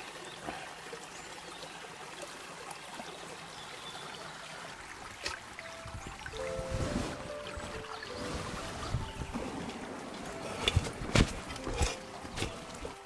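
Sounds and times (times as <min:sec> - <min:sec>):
stream water trickling: 0:00.0 - 0:13.0
music: 0:05.6 - 0:13.0.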